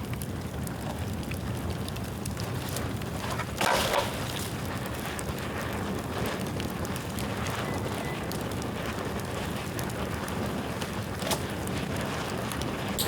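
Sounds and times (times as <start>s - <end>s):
bonfire flames rushing: 0.0s - 13.0s
fire crackling: 0.0s - 13.0s.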